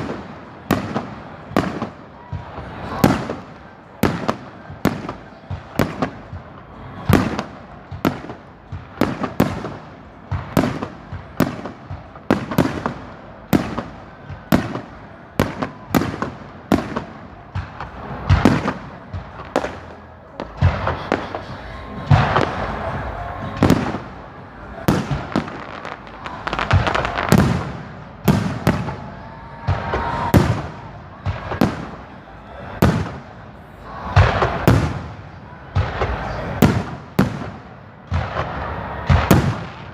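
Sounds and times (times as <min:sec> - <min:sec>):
firework crackling: 0:00.0 - 0:39.9.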